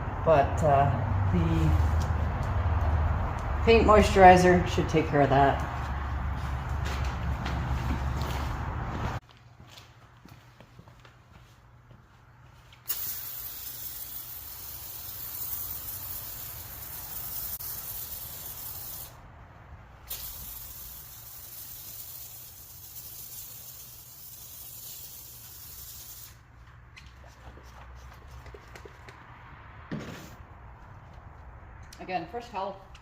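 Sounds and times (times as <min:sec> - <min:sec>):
foam sprayer hissing: 0:12.9 - 0:19.2, 0:20.1 - 0:26.4.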